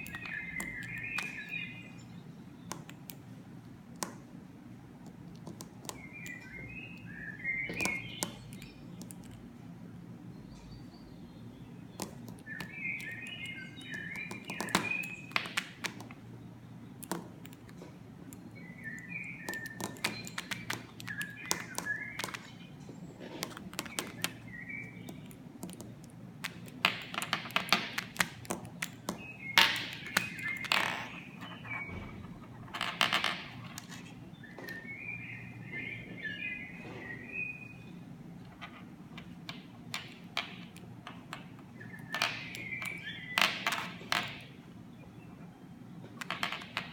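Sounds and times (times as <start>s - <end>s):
sharp taps and clicks: 0.0s - 1.8s, 2.6s - 4.3s, 5.0s - 7.1s, 7.7s - 9.4s, 11.9s - 16.3s, 17.0s - 22.6s, 23.4s - 34.9s
small bird chirping: 0.0s - 3.2s, 5.4s - 9.5s, 10.3s - 46.9s.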